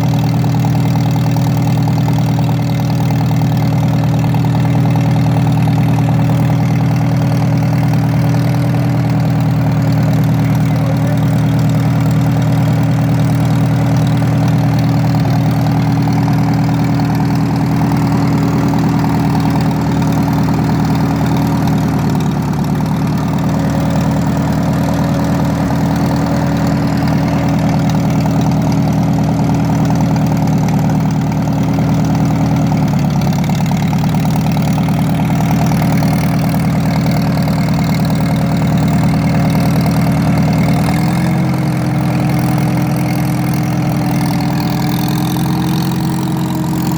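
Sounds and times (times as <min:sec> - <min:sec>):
tractor engine idling: 0:00.0 - 0:46.9.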